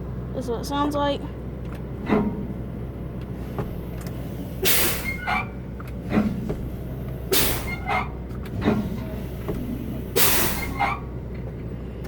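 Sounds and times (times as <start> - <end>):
diesel engine idling: 0.0 - 12.0
air brakes hissing: 2.0 - 11.2.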